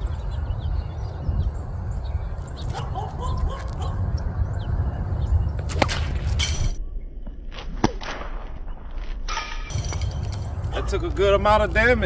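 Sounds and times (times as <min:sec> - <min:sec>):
wind rumble on microphone: 0:00.0 - 0:07.6, 0:09.7 - 0:12.0
sling crack and whoosh: 0:05.6 - 0:08.8.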